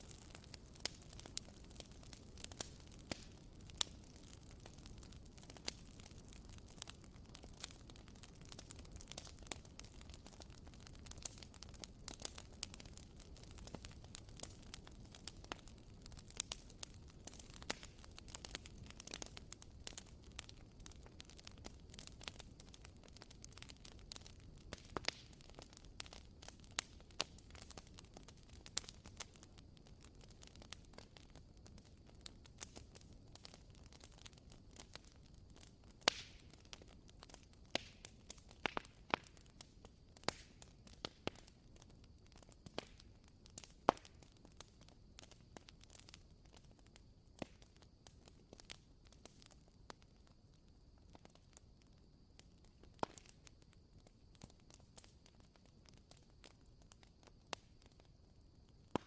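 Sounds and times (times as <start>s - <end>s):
small pops: 37.7s - 39.4s.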